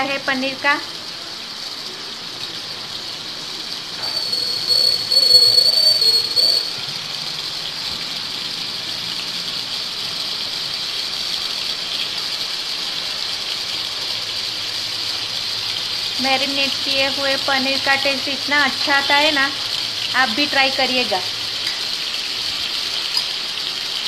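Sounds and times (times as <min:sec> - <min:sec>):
paneer sizzling in oil: 0:00.0 - 0:24.0
high whistling squeal: 0:04.0 - 0:06.9.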